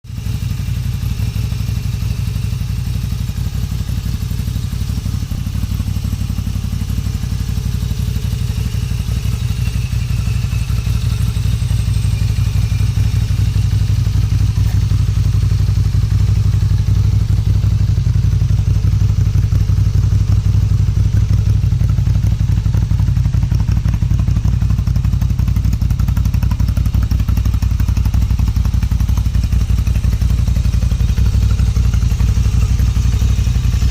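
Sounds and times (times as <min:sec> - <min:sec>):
motorcycle idling deep exhaust: 0:00.0 - 0:33.9.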